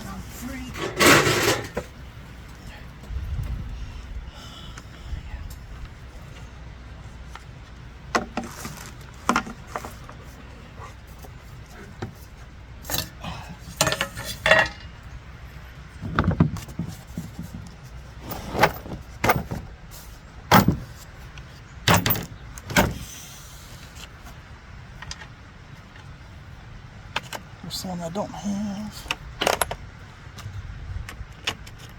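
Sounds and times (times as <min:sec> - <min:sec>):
metal tools clinking and knocking: 0:00.6 - 0:01.9, 0:12.9 - 0:13.2, 0:13.8 - 0:15.0, 0:20.5 - 0:20.8, 0:21.9 - 0:23.0.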